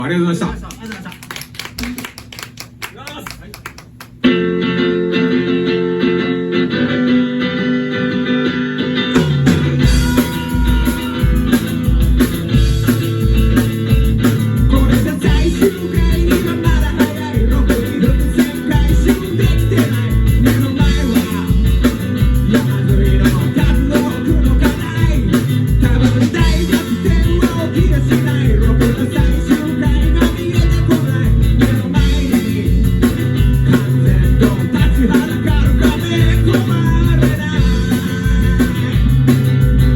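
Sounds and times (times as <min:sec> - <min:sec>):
electric guitar: 0:03.7 - 0:39.9
bass and drums: 0:09.0 - 0:39.9.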